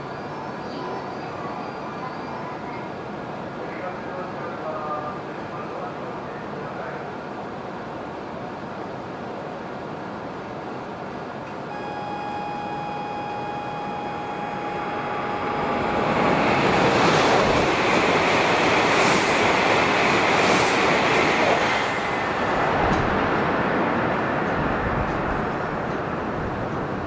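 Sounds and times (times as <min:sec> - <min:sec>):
train passing at speed: 0:00.0 - 0:27.0
steady high tone: 0:11.6 - 0:18.6.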